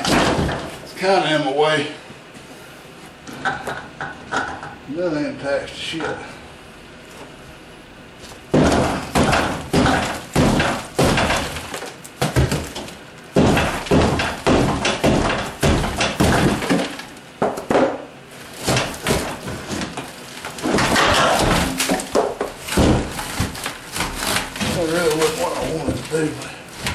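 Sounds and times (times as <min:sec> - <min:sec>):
wooden shelving knocked and cracking: 0:00.0 - 0:00.8, 0:08.5 - 0:26.9.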